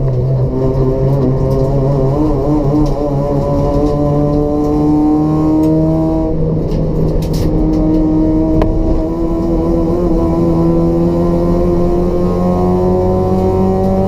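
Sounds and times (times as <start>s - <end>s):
race car engine revving up: 0.0s - 14.0s.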